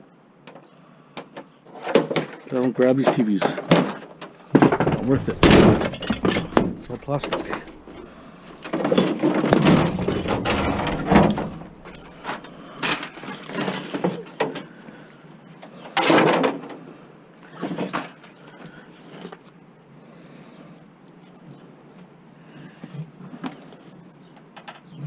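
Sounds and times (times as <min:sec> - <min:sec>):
plastic bangs and cracks: 0:03.4 - 0:14.5
plastic parts knocking: 0:04.6 - 0:12.5.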